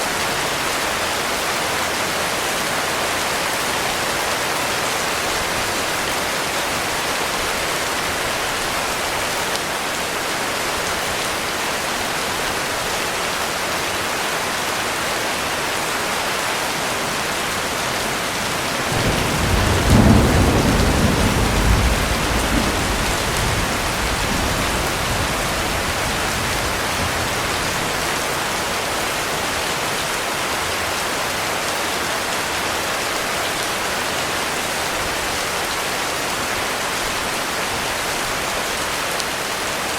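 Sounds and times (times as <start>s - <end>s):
heavy rain: 0.0s - 39.9s
low thunder rumble: 17.6s - 28.1s.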